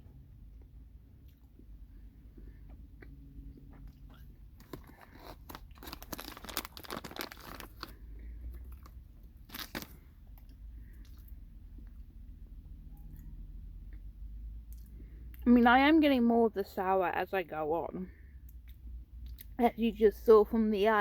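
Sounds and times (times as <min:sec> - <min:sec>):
crunchy chewing close-up: 0:00.5 - 0:12.2.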